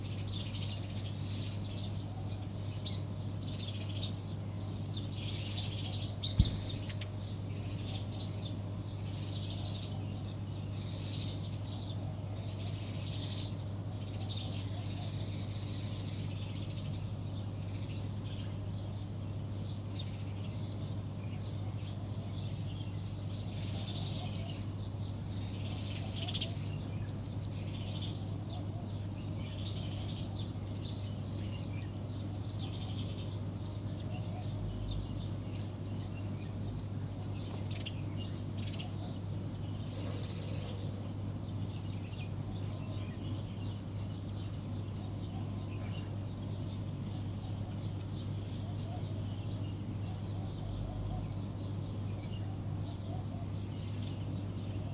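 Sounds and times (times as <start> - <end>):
steady low hum: 0.0 - 10.2
small birds chirping: 0.0 - 54.9.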